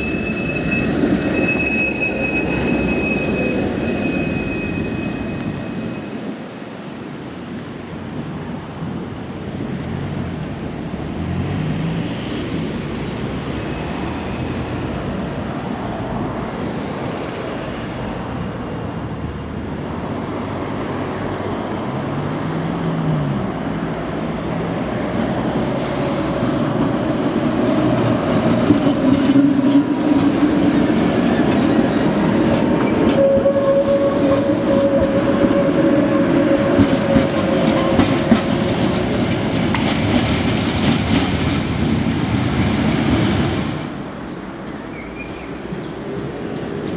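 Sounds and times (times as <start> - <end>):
tram wheels squealing: 0.0 - 6.8, 12.8 - 16.0, 20.7 - 46.9
tram rumbling on street track: 0.0 - 46.9.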